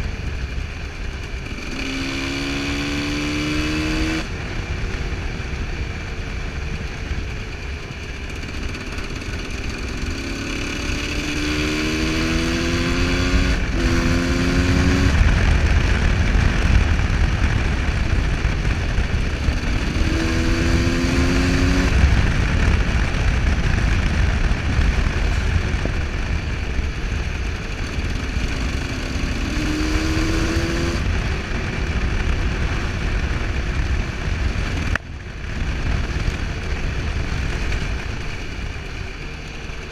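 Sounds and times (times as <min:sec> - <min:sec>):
motorcycle engine revving: 0:00.0 - 0:39.9
wind on microphone: 0:11.0 - 0:38.8.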